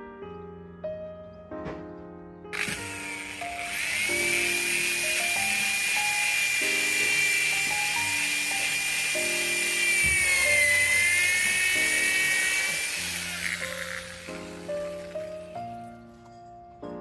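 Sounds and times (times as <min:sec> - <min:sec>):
background music: 0:00.0 - 0:17.0
power drill whining: 0:02.6 - 0:15.9.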